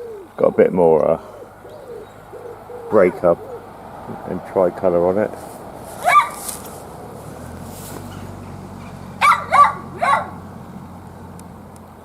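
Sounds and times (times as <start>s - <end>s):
dog barking: 6.0s - 6.4s, 9.2s - 10.4s.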